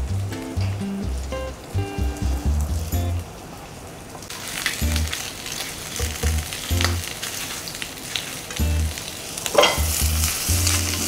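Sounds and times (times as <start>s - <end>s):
chicken wings sizzling in oil: 4.3s - 11.0s.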